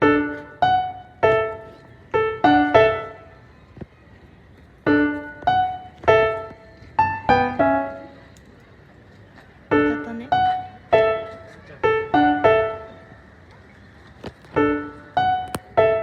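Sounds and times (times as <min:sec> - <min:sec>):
piano melody: 0:00.0 - 0:03.5, 0:04.8 - 0:08.3, 0:09.7 - 0:13.4, 0:14.5 - 0:16.0.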